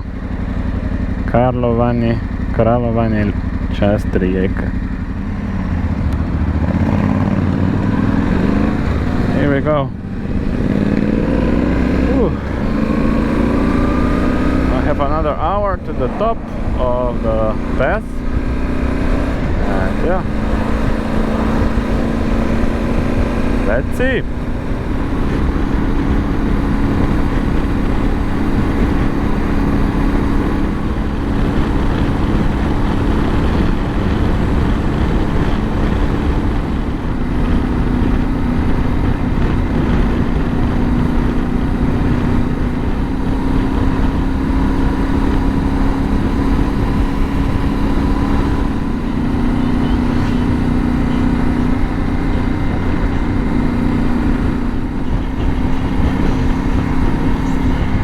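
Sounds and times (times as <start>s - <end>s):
motorcycle engine cruising: 0.0s - 58.0s
wind noise: 5.0s - 58.0s.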